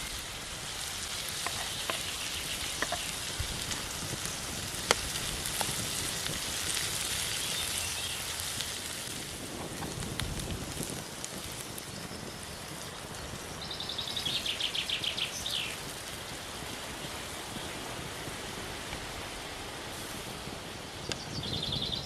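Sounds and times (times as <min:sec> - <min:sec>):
rain falling: 0:00.0 - 0:21.6
songbird singing: 0:01.1 - 0:04.4, 0:07.1 - 0:08.4, 0:11.8 - 0:15.9, 0:20.9 - 0:22.0.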